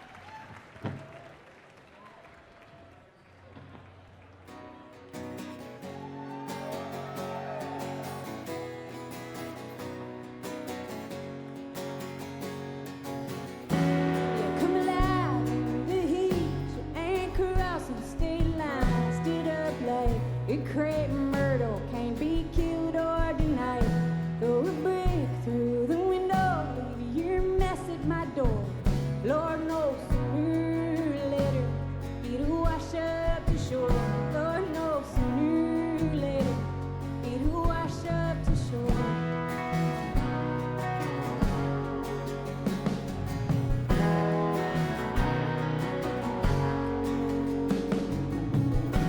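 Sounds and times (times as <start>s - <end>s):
live band music: 13.1s - 20.5s, 33.8s - 49.0s.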